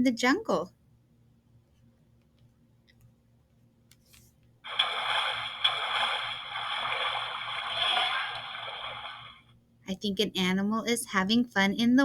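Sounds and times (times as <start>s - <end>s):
water splashing and sloshing: 4.7s - 9.4s.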